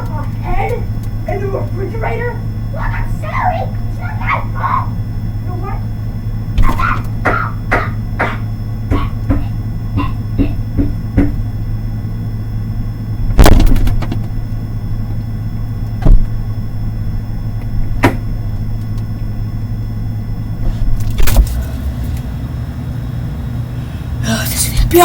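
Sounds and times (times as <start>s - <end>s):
steady low hum: 0.0s - 25.0s
sharp knocks: 6.6s - 11.4s.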